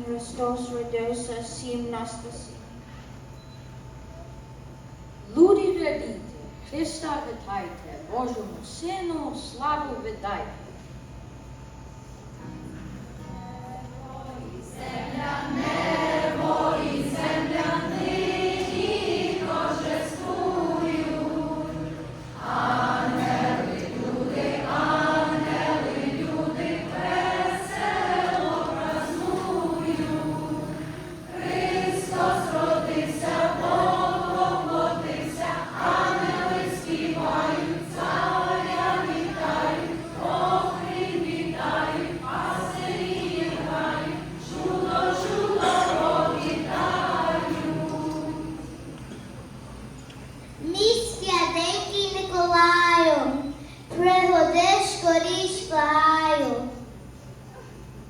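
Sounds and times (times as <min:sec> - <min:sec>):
choir singing a carol: 0:14.0 - 0:49.9.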